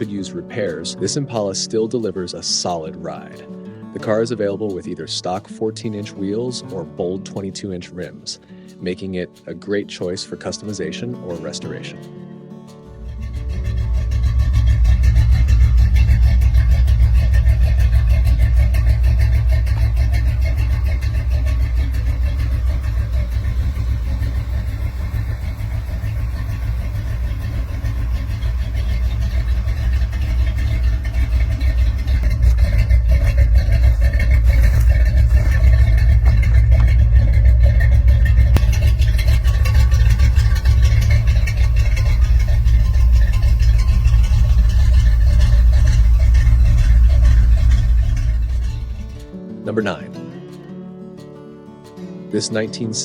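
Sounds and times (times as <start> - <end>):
car engine rumbling: 12.8 - 49.4.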